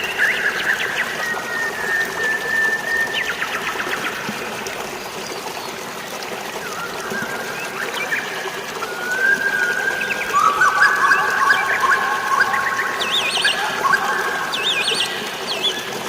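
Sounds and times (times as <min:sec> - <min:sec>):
flowing water: 0:00.0 - 0:16.0
birds chirping: 0:09.6 - 0:16.0.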